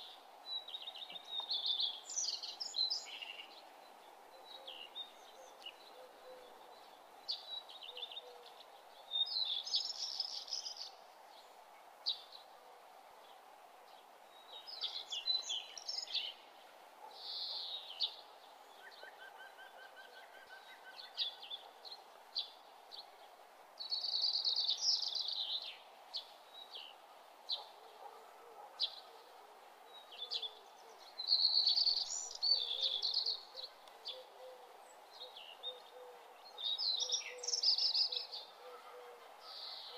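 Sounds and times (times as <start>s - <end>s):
birds chirping: 13.2s - 39.9s.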